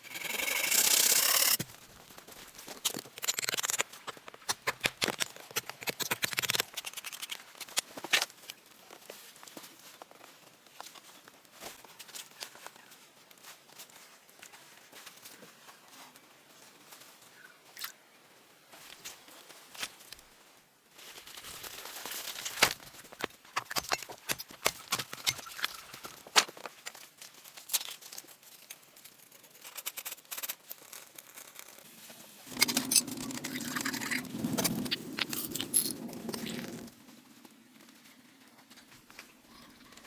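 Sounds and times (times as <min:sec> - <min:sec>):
tools scraping and crunching: 0:22.4 - 0:27.0, 0:32.5 - 0:36.9.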